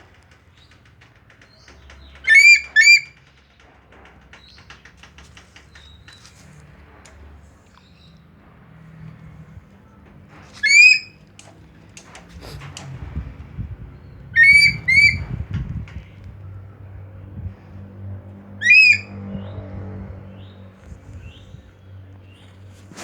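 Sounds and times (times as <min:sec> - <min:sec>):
eagle shrill calls: 0:02.3 - 0:03.1, 0:10.6 - 0:11.2, 0:14.4 - 0:15.3, 0:18.6 - 0:19.2.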